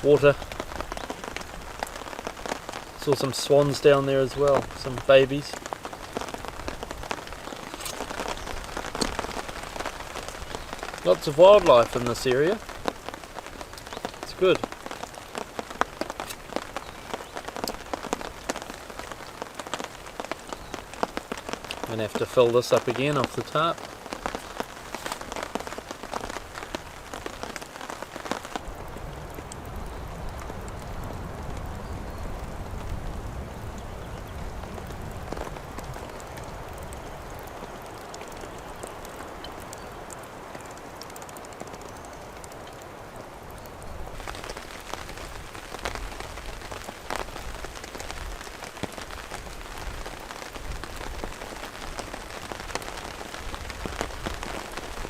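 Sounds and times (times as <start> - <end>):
raindrops pattering: 0.0 - 55.0
steady rain: 0.0 - 55.0.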